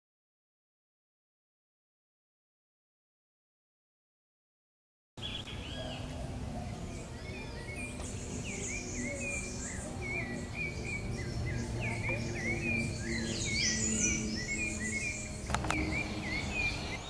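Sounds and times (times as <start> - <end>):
small birds chirping: 5.2 - 17.0.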